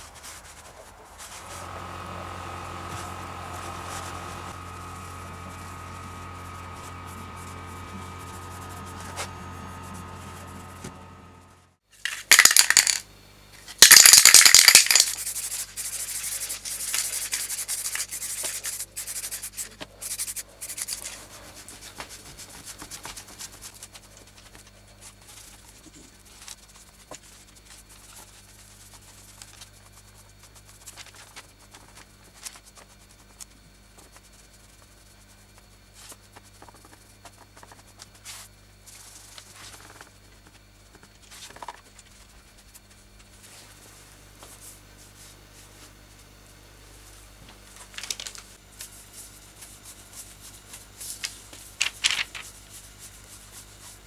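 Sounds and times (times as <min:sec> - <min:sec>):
motor humming: 0:01.0 - 0:13.0
rubbing and light clicks: 0:13.8 - 0:24.7.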